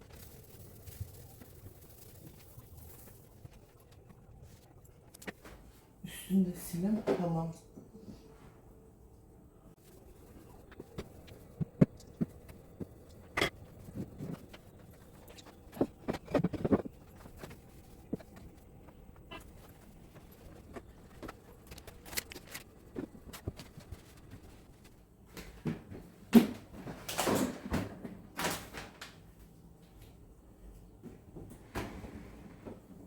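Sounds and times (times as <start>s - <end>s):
rubbing and scraping: 0.0s - 5.4s, 9.8s - 25.0s.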